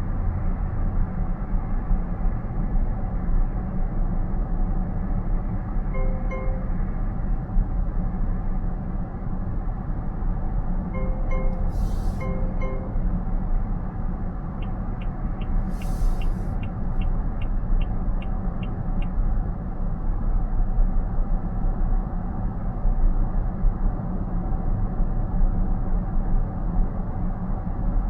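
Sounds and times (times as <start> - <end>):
road and tyre rumble: 0.0 - 28.0
brief hiss: 11.6 - 12.5, 15.7 - 16.6
light evenly spaced ticks: 14.6 - 19.2.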